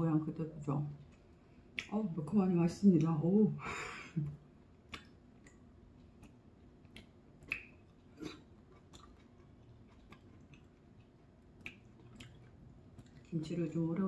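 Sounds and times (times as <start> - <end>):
person chewing: 0.9 - 1.9, 4.4 - 13.4.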